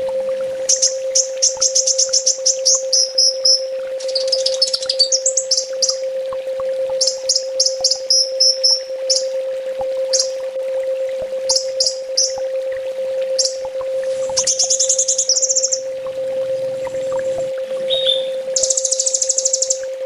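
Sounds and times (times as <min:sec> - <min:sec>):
steady low hum: 0:00.0 - 0:20.0
bird singing high sharp chips: 0:00.7 - 0:06.0, 0:07.0 - 0:09.3, 0:11.5 - 0:12.4, 0:13.4 - 0:13.7, 0:17.9 - 0:19.8.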